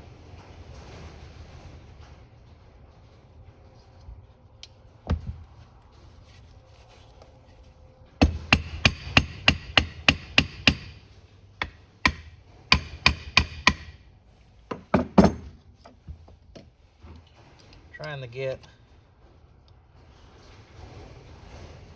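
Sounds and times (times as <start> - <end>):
hammer tapping on metal: 8.2 - 11.0, 11.6 - 14.0.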